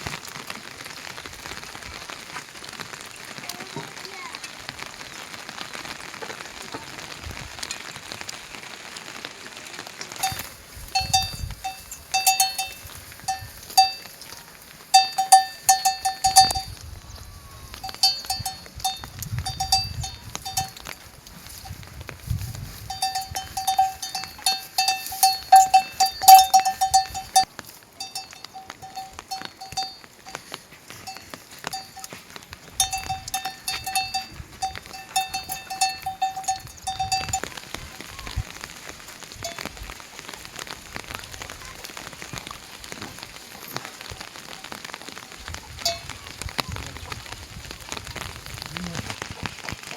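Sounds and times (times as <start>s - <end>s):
rain falling: 0.0s - 49.9s
metal livestock bell clanking: 10.2s - 16.7s, 17.8s - 21.8s, 22.8s - 32.2s, 32.8s - 37.6s.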